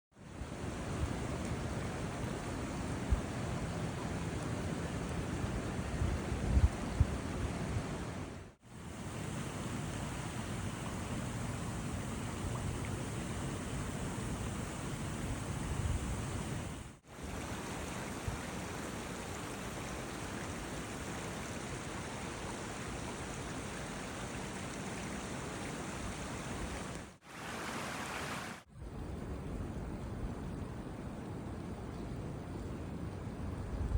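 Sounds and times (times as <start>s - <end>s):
blizzard wind on microphone: 5.3s - 10.1s, 12.0s - 20.8s.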